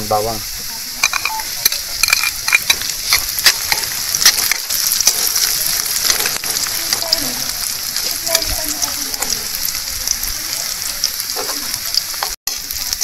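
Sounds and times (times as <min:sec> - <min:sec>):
garlic sizzling in oil: 0:00.0 - 0:13.0
utensil scraping a pan: 0:01.0 - 0:09.4.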